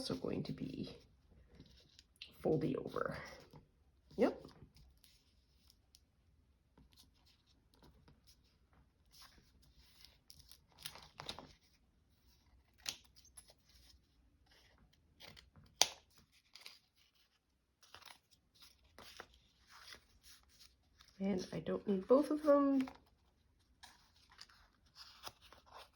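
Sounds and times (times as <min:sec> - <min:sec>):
paper rustling and crackling: 0:06.8 - 0:25.9.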